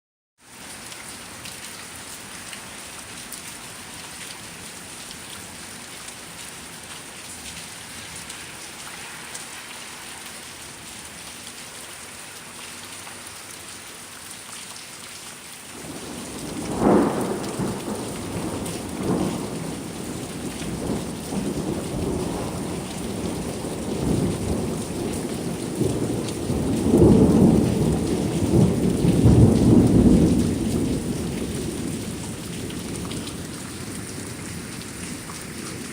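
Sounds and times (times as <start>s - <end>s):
steady rain falling: 0.4s - 35.9s
thunder crack and rumbles: 15.8s - 35.9s.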